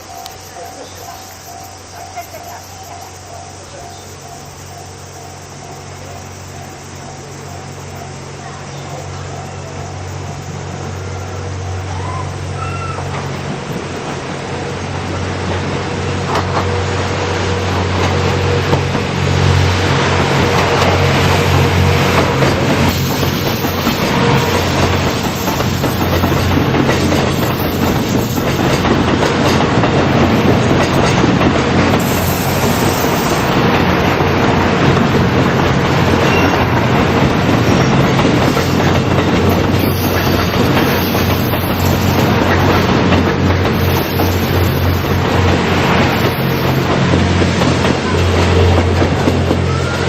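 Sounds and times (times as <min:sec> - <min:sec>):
train wheels clattering over rail joints: 0:13.0 - 0:50.0.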